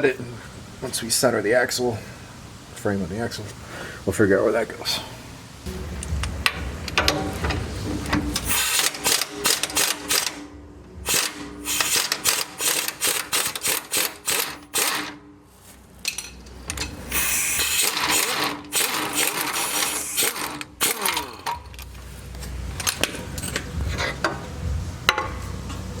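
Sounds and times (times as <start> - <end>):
pneumatic impact wrench hammering: 6.1 - 15.2, 16.1 - 21.7.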